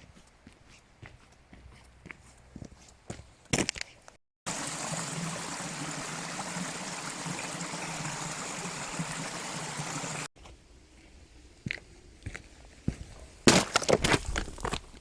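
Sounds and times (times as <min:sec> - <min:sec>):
mountain stream flowing: 0:04.5 - 0:10.3.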